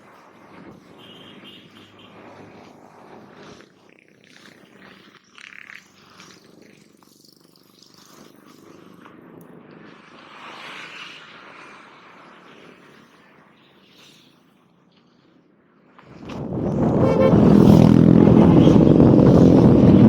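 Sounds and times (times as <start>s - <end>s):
road noise: 16.0s - 20.0s
wind rumbling on microphone: 16.1s - 20.0s.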